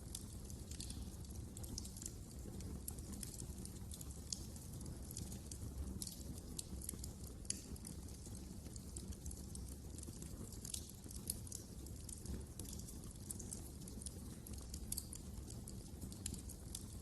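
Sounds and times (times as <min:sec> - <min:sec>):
low rumble of burning fire: 0:00.0 - 0:17.0
wood fire crackling: 0:00.0 - 0:17.0.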